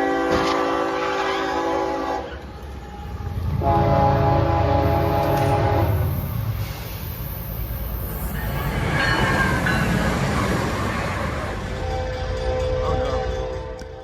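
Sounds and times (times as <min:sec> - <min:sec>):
locomotive horn chord: 0:00.0 - 0:06.2, 0:11.8 - 0:14.0
passing train rumble: 0:00.0 - 0:14.0.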